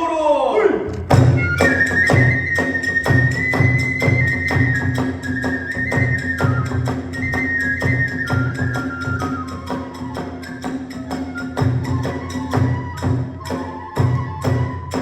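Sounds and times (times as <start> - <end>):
quick drum strikes: 0.9 - 2.3
deep drum beats: 0.9 - 5.3
bamboo flute melody: 1.0 - 15.0
small hand cymbals: 1.1 - 15.0.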